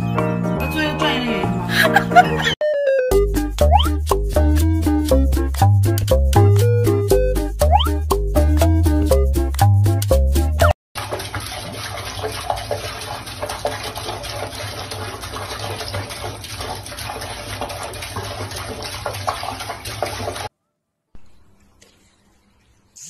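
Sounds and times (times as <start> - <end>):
tap water running and splashing: 11.0 - 20.5.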